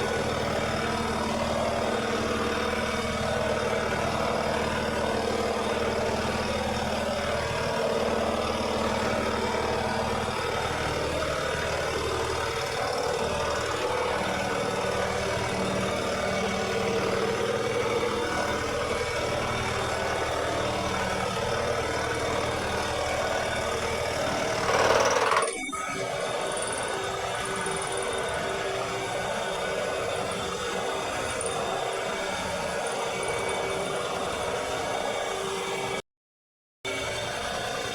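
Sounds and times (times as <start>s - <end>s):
lawn mower engine running: 0.0s - 25.5s.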